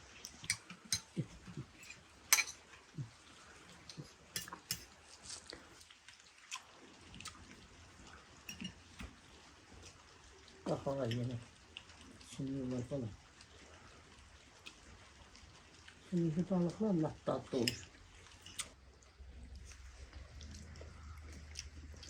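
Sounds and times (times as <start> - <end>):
utensils and dishes clicking: 1.8 - 2.6.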